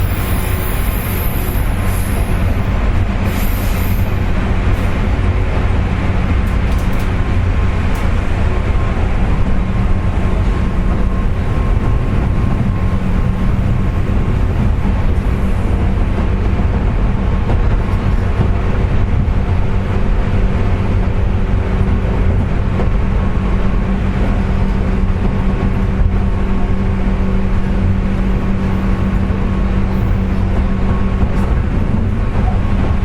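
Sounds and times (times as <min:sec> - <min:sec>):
wheel and rail rumble: 0:00.0 - 0:33.0.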